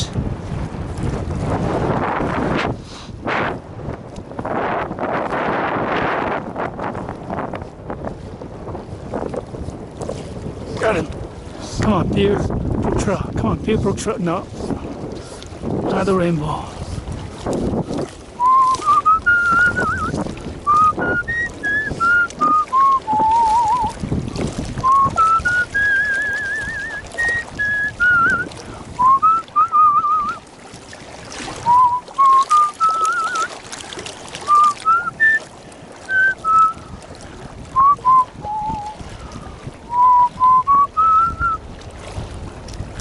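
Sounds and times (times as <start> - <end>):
wind noise rumble: 0.0 - 43.0
man whistling a slow tune: 18.4 - 24.0, 24.8 - 30.4, 31.6 - 33.6, 34.5 - 36.9, 37.7 - 39.0, 39.9 - 41.6.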